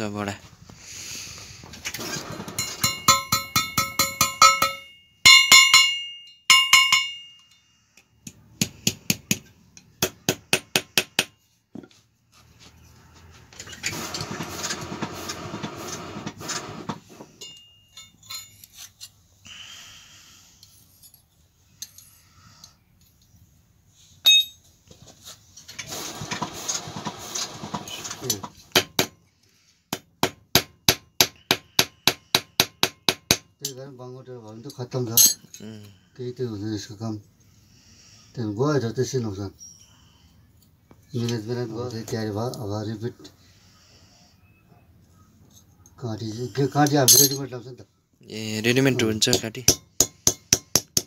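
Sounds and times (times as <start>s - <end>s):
hammer striking iron on anvil: 2.8s - 7.5s, 24.2s - 24.6s, 49.3s - 51.0s.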